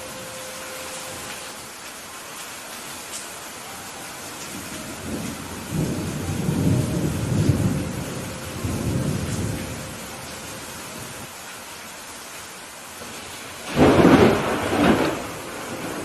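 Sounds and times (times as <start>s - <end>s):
rain hissing: 0.0s - 16.0s
rolling thunder rumble: 4.5s - 11.3s, 13.0s - 16.0s.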